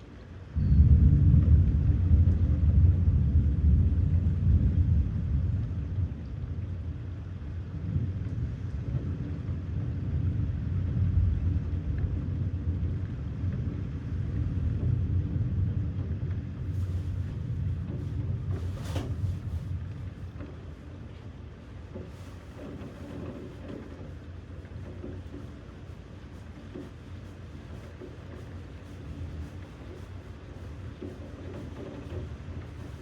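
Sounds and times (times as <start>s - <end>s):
thunder rumbling: 0.4s - 21.5s.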